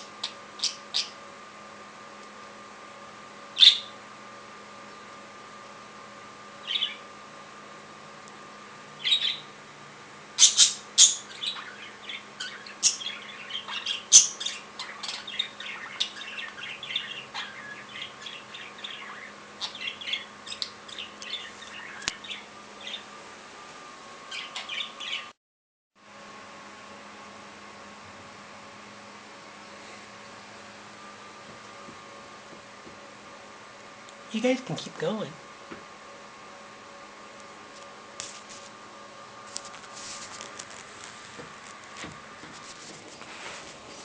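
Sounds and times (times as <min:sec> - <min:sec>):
faint steady hum: 0:00.0 - 0:25.4, 0:26.0 - 0:44.0
budgies chirping and chattering: 0:00.2 - 0:01.2, 0:06.6 - 0:07.0, 0:09.0 - 0:09.5, 0:10.4 - 0:23.1, 0:24.3 - 0:25.3.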